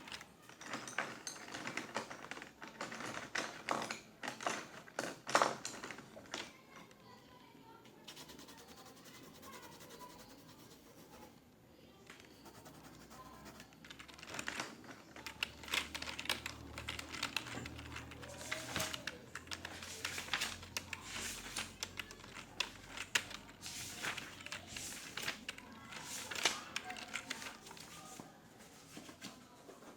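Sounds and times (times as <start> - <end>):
computer keyboard typing: 8.1 - 11.4, 12.2 - 28.2.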